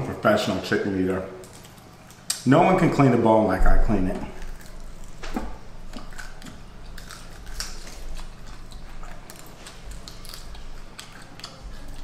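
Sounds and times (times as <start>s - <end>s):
chewing on a chicken bone: 4.0s - 12.0s.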